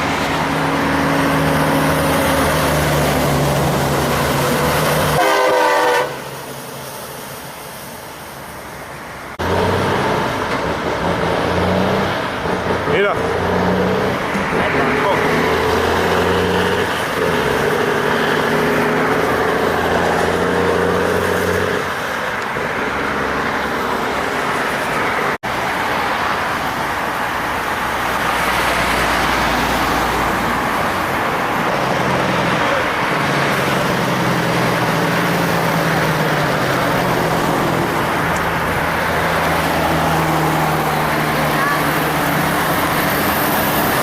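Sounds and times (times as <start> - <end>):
tyre and road noise: 0.0 - 44.0
truck engine droning: 9.4 - 44.0.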